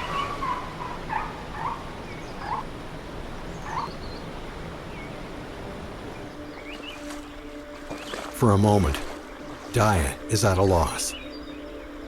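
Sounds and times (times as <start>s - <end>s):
rainforest background hiss: 0.0s - 12.0s.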